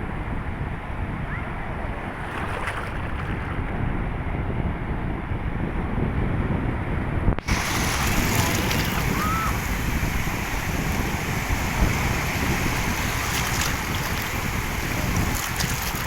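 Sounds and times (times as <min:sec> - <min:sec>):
wind buffeting microphone: 0:00.0 - 0:16.0
rushing water: 0:02.1 - 0:03.6, 0:07.4 - 0:16.0.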